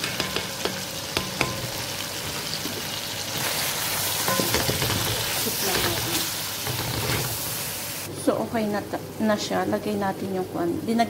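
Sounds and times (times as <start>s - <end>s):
spatula stirring in a pan: 0.0s - 7.8s
meat sizzling in hot oil: 0.0s - 10.4s.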